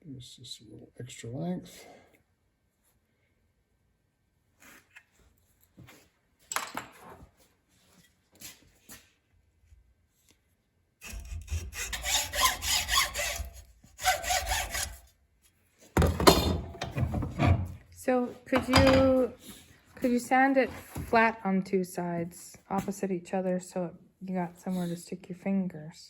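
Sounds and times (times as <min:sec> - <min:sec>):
hand saw cutting: 0:11.0 - 0:15.1.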